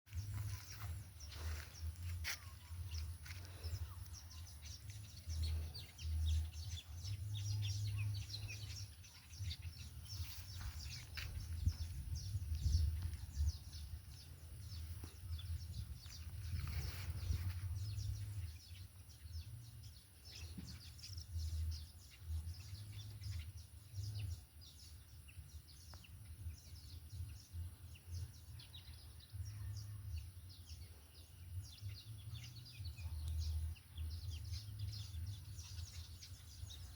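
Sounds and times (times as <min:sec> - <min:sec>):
small birds chirping: 0:00.1 - 0:36.9
wind rumbling on microphone: 0:02.9 - 0:24.8.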